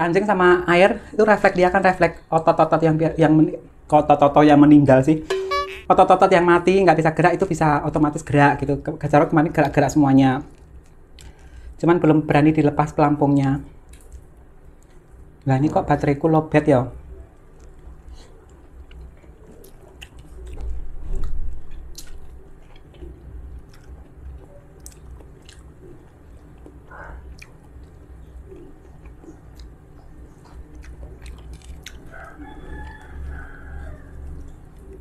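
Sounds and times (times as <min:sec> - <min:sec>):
person chewing: 0:17.3 - 0:35.0.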